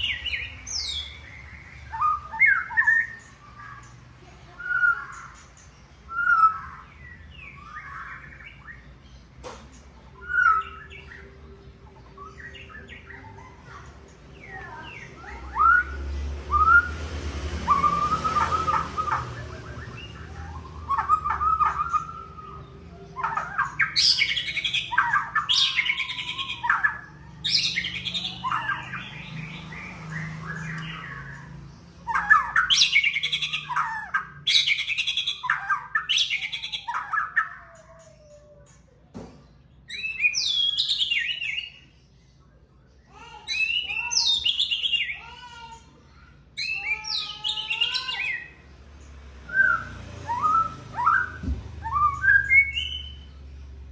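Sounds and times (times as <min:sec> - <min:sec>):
bird singing whistled phrases: 0:01.8 - 0:03.8, 0:06.1 - 0:08.8, 0:10.2 - 0:11.3, 0:14.4 - 0:31.4, 0:32.0 - 0:37.7, 0:39.9 - 0:41.9, 0:43.5 - 0:45.3, 0:49.5 - 0:53.3.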